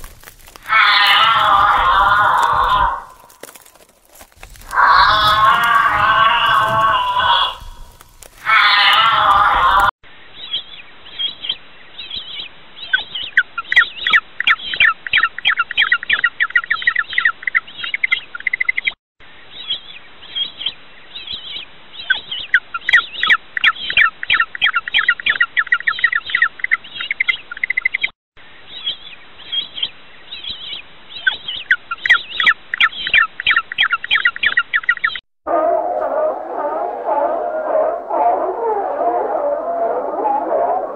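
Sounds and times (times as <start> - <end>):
songbird singing: 4.4 - 35.2.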